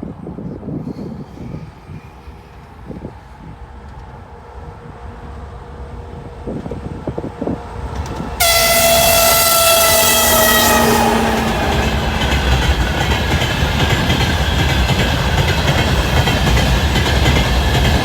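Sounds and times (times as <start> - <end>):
locomotive rumble: 4.9 - 18.0
locomotive horn blast: 8.4 - 12.9.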